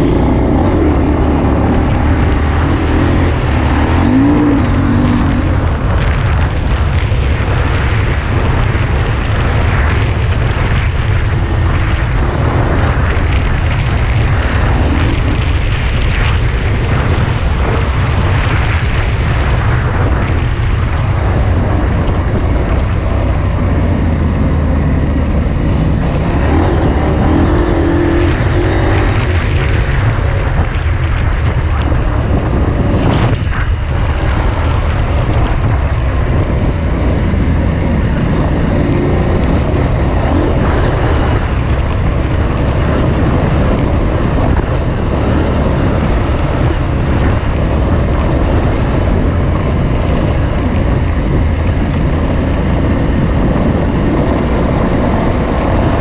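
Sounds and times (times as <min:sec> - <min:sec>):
motorcycle engine running: 0:00.0 - 0:56.0
wind buffeting on microphone: 0:00.0 - 0:56.0.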